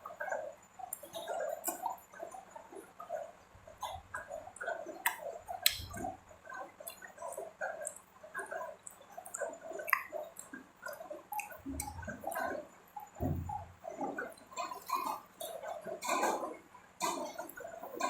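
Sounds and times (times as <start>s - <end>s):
wet chewing mouth smacks: 3.8s - 12.6s.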